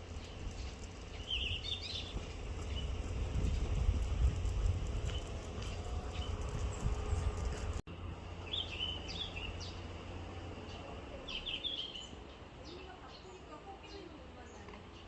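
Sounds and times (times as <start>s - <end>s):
low background rumble: 0.0s - 11.7s.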